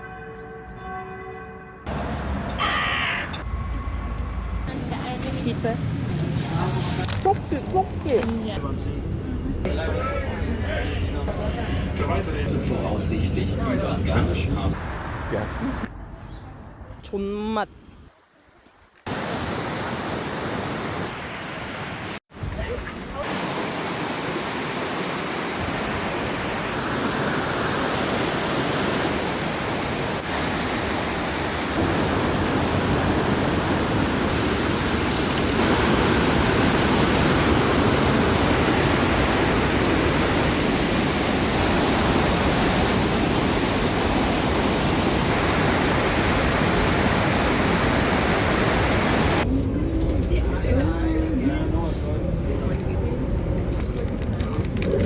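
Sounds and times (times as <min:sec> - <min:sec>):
white water rushing through gorge: 0:23.2 - 0:49.4.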